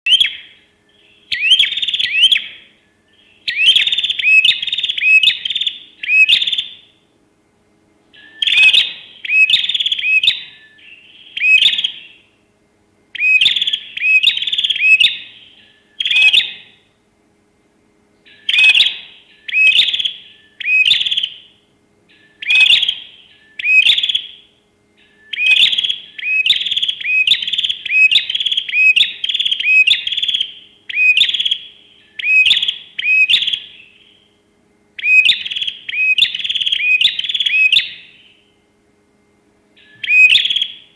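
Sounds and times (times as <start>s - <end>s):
bird whistled calls: 0.1s - 6.9s, 8.1s - 12.3s, 13.2s - 16.8s, 18.3s - 34.4s, 35.0s - 38.6s, 39.8s - 40.9s.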